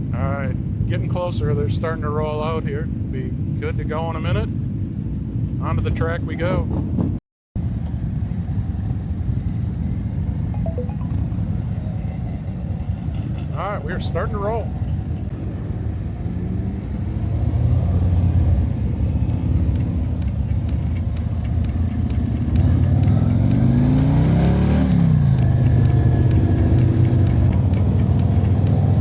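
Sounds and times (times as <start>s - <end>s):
motorcycle engine revving: 16.3s - 29.0s.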